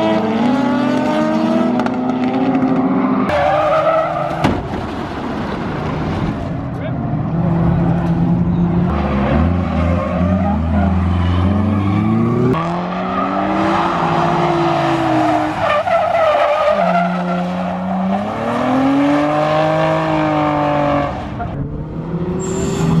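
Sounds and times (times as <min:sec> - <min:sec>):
car engines revving: 0:00.0 - 0:23.0
tyres squealing and skidding: 0:03.2 - 0:07.1, 0:08.5 - 0:19.7, 0:22.4 - 0:23.0.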